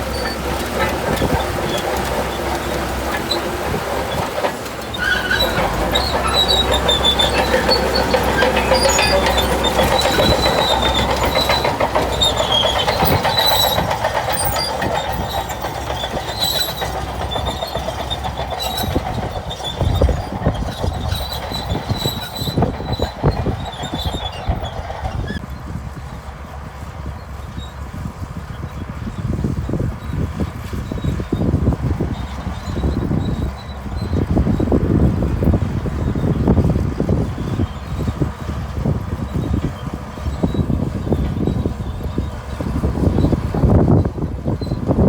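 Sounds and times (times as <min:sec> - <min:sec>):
high squeals: 0:00.0 - 0:25.4
bulldozer diesel engine: 0:00.0 - 0:45.0
steel tracks squealing and clanking: 0:00.0 - 0:45.0.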